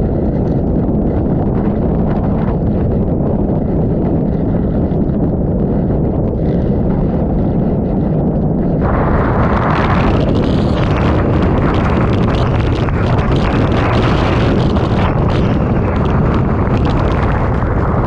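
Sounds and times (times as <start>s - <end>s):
wind buffeting microphone: 0.0s - 18.0s
lashing rain: 8.8s - 18.0s.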